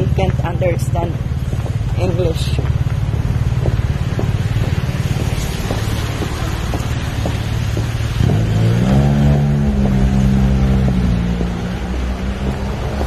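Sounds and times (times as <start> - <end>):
vehicle engine running: 0.0 - 13.0
engine revving up: 3.1 - 13.0.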